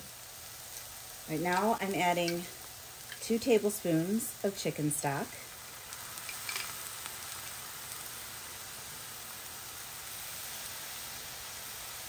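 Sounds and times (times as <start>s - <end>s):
cauliflower rice sizzling in a skillet: 0.0s - 12.0s.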